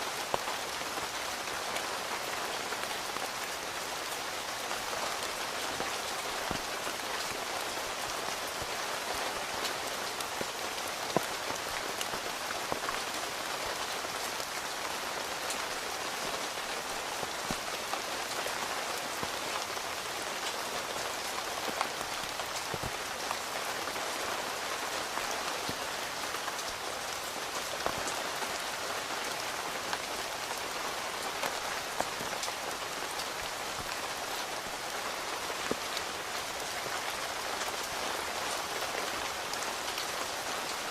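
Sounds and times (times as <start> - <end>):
rain on a tent: 0.0 - 40.9.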